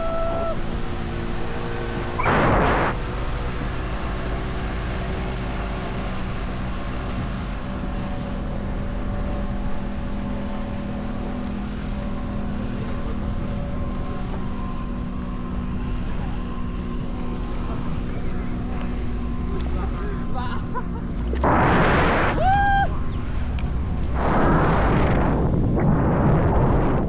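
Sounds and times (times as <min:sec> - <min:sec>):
wind on microphone: 0:00.0 - 0:07.8, 0:20.8 - 0:27.0
boat engine running: 0:00.0 - 0:27.0.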